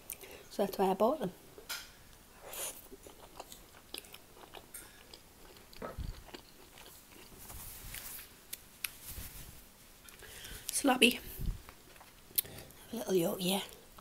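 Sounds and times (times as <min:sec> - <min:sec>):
close chewing mouth sounds: 0:02.4 - 0:07.4, 0:11.4 - 0:12.9.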